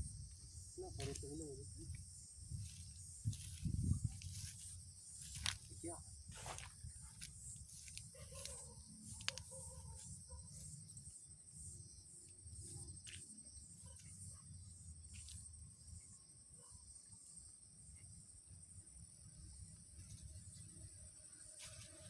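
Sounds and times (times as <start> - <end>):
insects chirring: 0.0 - 22.0
low wind rumble: 1.7 - 4.6
faint ticks: 7.2 - 10.0.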